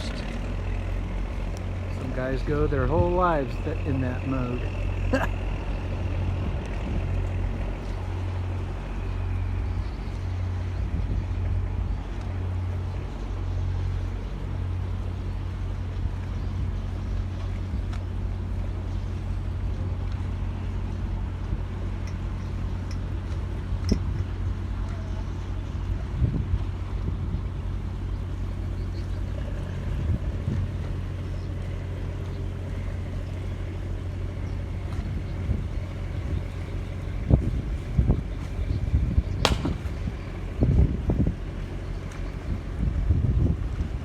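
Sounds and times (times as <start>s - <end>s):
diesel engine droning: 0.0s - 44.0s.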